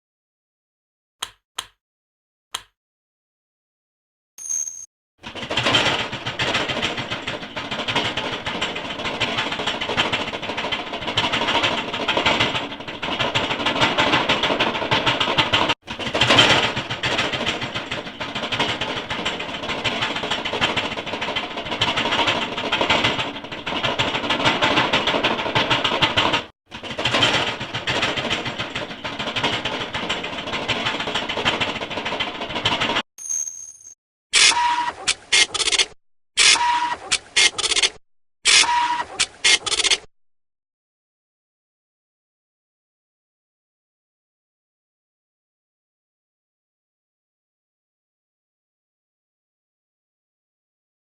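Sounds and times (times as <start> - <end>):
machine rattling clatter: 5.2 - 33.0, 35.1 - 40.1.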